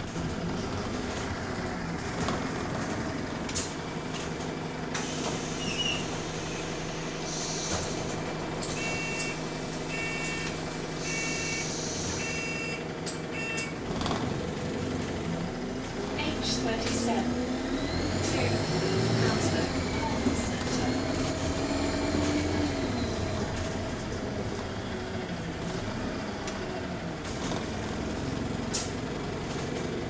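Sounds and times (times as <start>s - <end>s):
bus engine hum: 0.0s - 30.0s
air hissing: 5.1s - 8.2s
short warning beeps: 8.8s - 13.8s.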